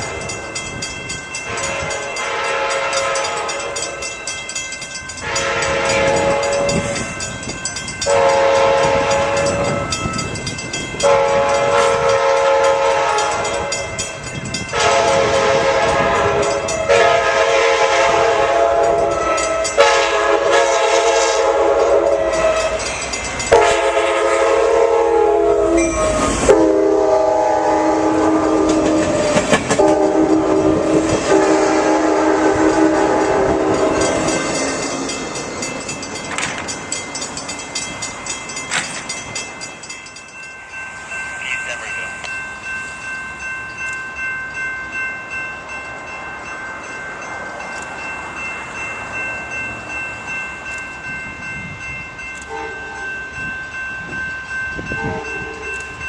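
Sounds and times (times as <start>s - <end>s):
train rumbling on rails: 0.0s - 56.0s
train air horn blasts: 1.5s - 4.0s, 5.2s - 7.1s, 8.1s - 9.9s, 11.0s - 13.9s, 14.7s - 22.9s, 23.5s - 34.4s.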